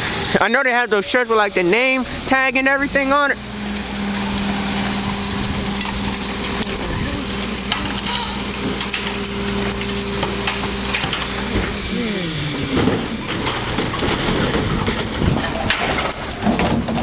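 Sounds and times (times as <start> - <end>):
truck engine running: 0.0 - 17.0
clanks and rattles: 2.6 - 17.0.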